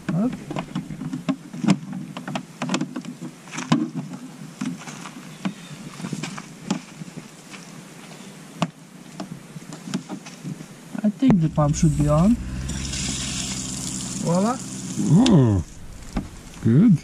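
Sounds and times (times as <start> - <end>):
low steady hum: 11.3 - 17.0.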